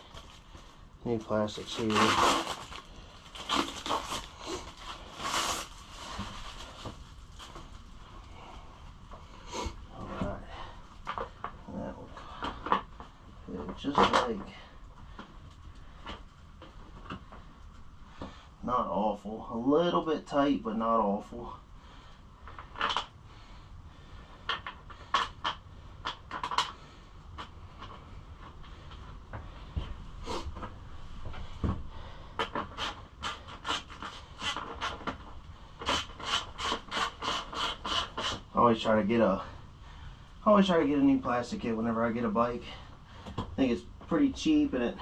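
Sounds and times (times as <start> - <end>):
plastic panels scraping and rustling: 1.2 - 7.8.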